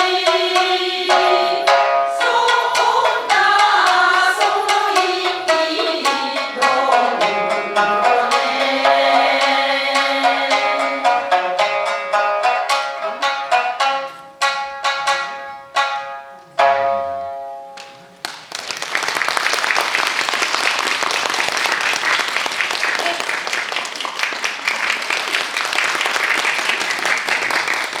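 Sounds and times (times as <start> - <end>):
shamisen plucked notes: 0.0 - 18.2
audience applauding: 18.2 - 28.0.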